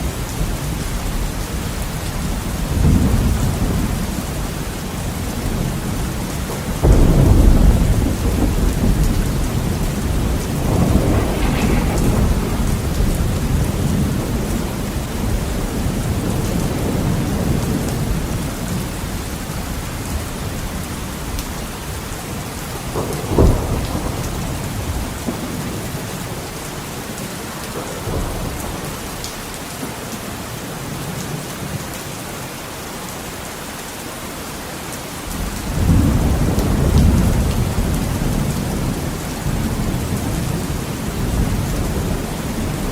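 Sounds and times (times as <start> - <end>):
heavy rain on a window: 0.0 - 42.9
sharp crack of thunder: 5.4 - 18.8, 22.8 - 29.9, 35.6 - 42.9
thunder rumbling: 6.5 - 18.5, 22.9 - 26.5.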